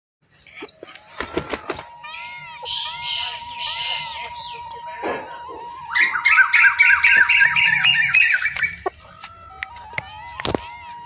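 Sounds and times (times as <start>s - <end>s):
birds chirping: 0.2s - 11.0s
harsh bird squawking: 0.4s - 5.0s, 5.6s - 9.3s.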